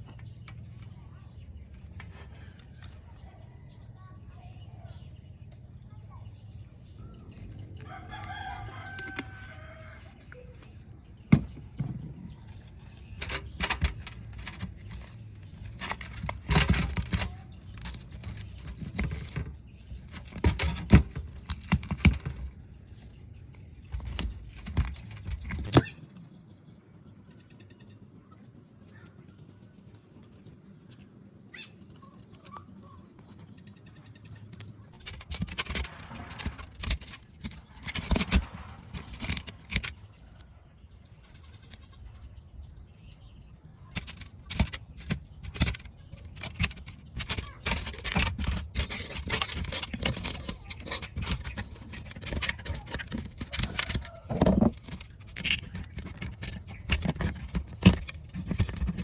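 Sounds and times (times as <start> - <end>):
tools clicking and scraping on parts: 7.3 - 10.5, 12.4 - 25.9, 31.7 - 41.8, 43.8 - 59.0.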